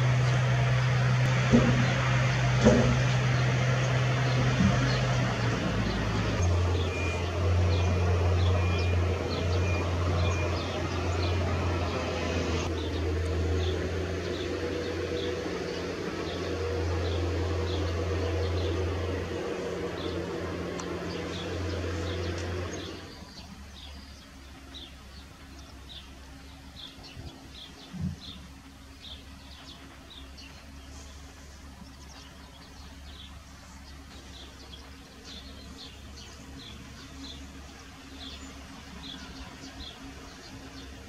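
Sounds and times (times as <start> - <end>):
loud low noise: 0.0 - 23.9
thump: 2.6 - 3.1.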